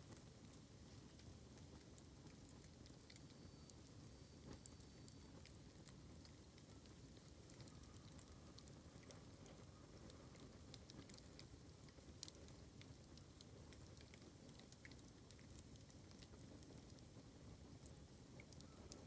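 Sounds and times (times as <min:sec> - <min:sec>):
low noise of burning: 0:00.0 - 0:19.0
campfire crackling and popping: 0:05.4 - 0:19.0.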